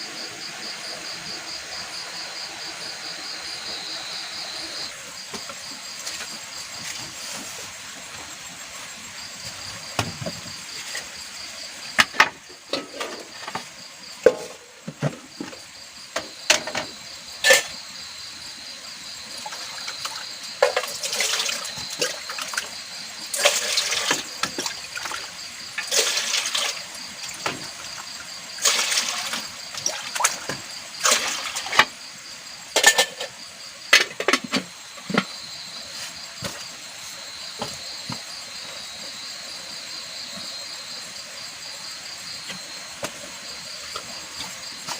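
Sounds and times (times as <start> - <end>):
insects chirring: 0.0 - 44.9
water pouring and splashing: 19.2 - 32.0.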